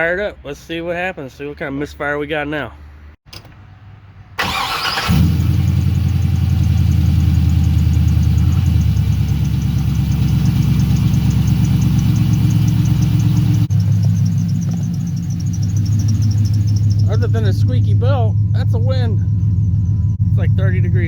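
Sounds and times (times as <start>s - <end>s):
car engine idling: 4.4s - 21.0s
squeaky belt chirp: 7.4s - 20.8s.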